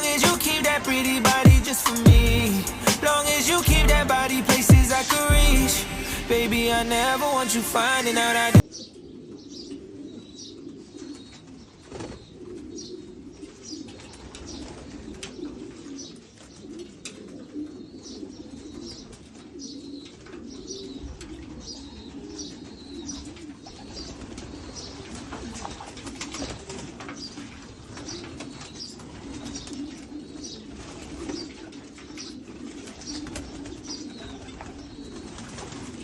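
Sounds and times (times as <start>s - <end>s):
pigeons cooing: 8.6s - 36.0s.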